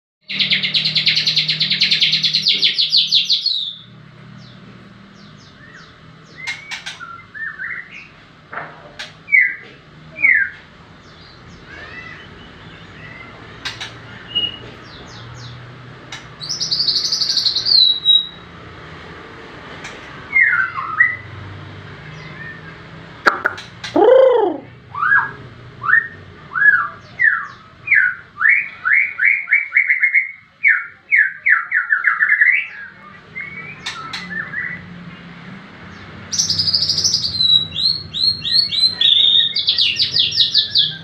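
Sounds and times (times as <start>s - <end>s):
bird buzzy trill: 0.2s - 4.5s, 11.2s - 18.6s
bird chirps and whistles: 12.9s - 14.6s, 16.4s - 18.5s, 36.3s - 41.0s.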